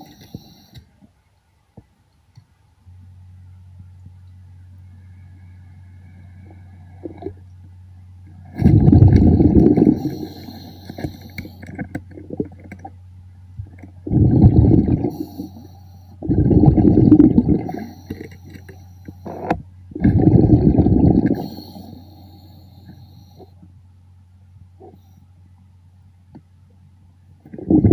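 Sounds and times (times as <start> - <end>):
underwater bubbles rushing: 8.4 - 12.9, 13.9 - 18.4, 19.3 - 22.0, 27.5 - 27.9.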